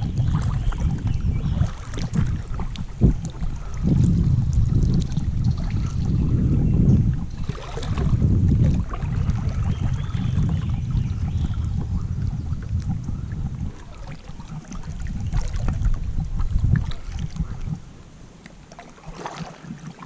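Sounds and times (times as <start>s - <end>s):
water splashing around kayak: 0.0s - 20.0s
wind rumbling on microphone: 0.0s - 20.0s
small clicks and drips: 1.6s - 6.1s.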